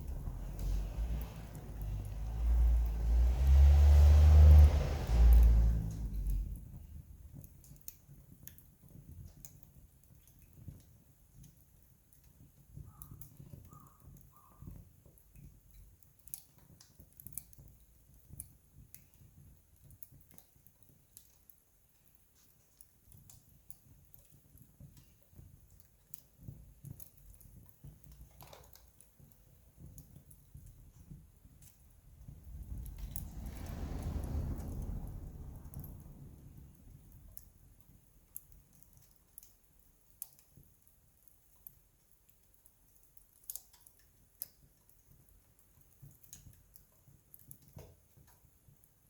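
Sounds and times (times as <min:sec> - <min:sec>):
campfire crackling and popping: 0:15.1 - 0:48.8.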